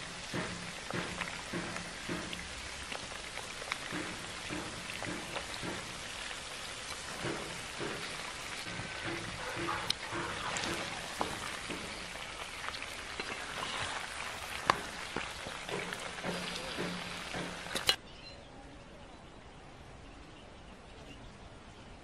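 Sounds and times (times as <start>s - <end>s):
meat sizzling in a pan: 0.0s - 18.0s
outdoor background: 0.0s - 22.0s
spatula knocking on pan: 0.2s - 2.6s, 3.8s - 17.9s.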